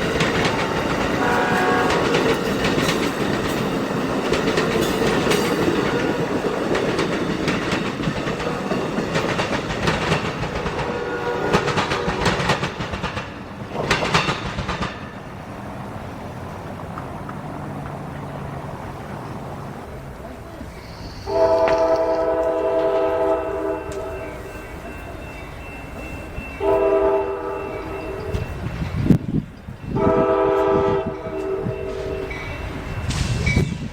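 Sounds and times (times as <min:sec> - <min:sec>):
train cars clattering over rails: 0:00.0 - 0:33.9
locomotive horn blasts: 0:01.2 - 0:02.4, 0:05.6 - 0:06.4, 0:10.6 - 0:12.6, 0:21.2 - 0:24.4, 0:26.6 - 0:28.5, 0:29.9 - 0:32.4.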